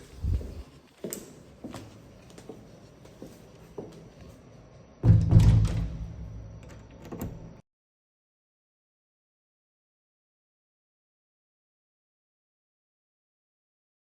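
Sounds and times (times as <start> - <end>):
loud low thud rumbling: 5.0 - 6.5.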